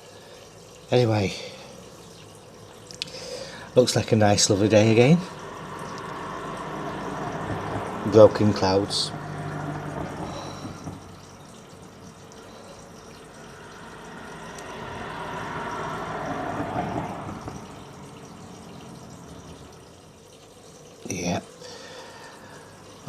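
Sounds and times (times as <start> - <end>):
vehicle passing by: 4.6 - 20.1.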